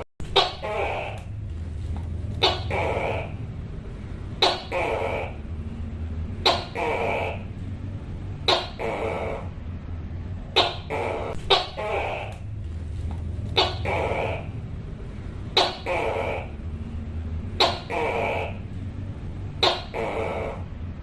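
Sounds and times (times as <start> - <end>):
gecko calling: 0.0 - 1.4, 2.3 - 3.6, 4.3 - 5.6, 6.4 - 7.6, 8.4 - 9.7, 10.5 - 12.6, 13.4 - 14.8, 15.5 - 16.8, 17.5 - 18.9, 19.5 - 20.9
steady low hum: 0.0 - 21.0.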